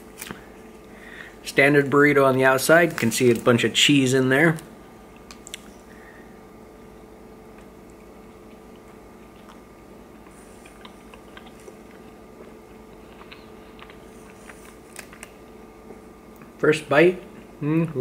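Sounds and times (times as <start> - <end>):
steady low hum: 0.0 - 18.0
chewing mouth clicks: 5.2 - 5.8, 7.5 - 15.3.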